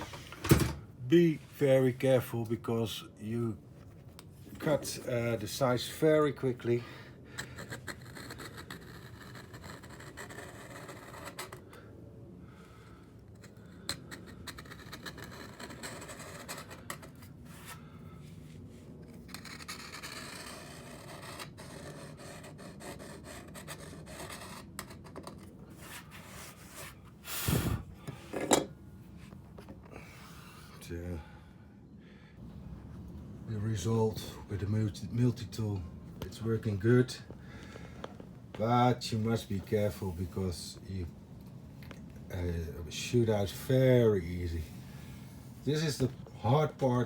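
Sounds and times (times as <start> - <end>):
multi-tool blade scraping caulking: 7.3 - 11.8, 13.4 - 17.3, 19.1 - 27.0.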